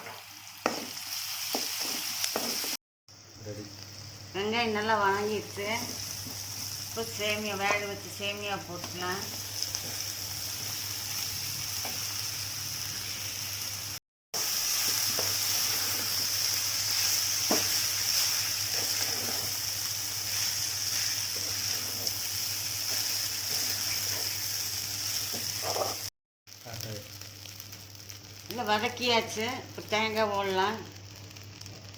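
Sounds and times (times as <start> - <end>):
spoon knocking on a pan: 0.0 - 2.7, 17.5 - 17.7
food sizzling in a pan: 0.0 - 31.9.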